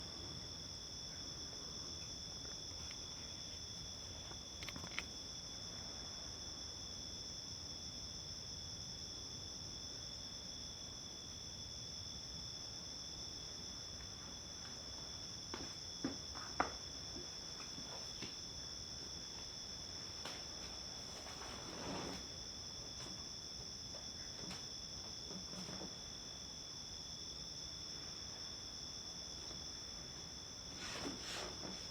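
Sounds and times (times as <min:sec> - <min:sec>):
crickets trilling: 0:00.0 - 0:31.9
soft rustle: 0:19.3 - 0:23.4, 0:29.4 - 0:31.9.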